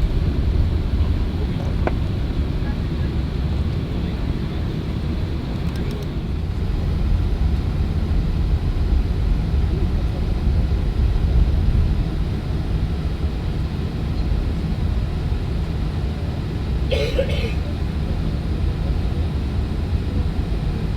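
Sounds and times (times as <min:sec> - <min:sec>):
airliner cabin rumble: 0:00.0 - 0:20.9.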